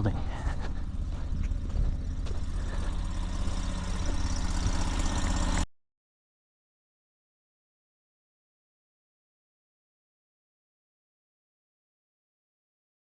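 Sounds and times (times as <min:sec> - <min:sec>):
engine idling: 0:00.0 - 0:05.7.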